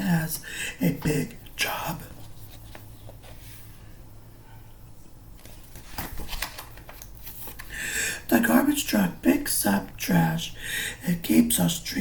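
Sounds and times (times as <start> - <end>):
low steady hum: 0.0 - 5.9
faint rustles and clicks: 2.0 - 3.8.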